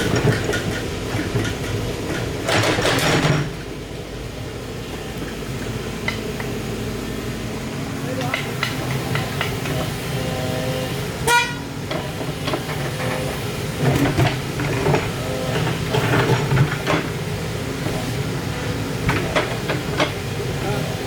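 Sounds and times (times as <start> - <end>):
metal knocks and clanks: 0.0 - 3.7
excavator diesel engine running: 0.0 - 21.0
horn toot: 11.2 - 11.7.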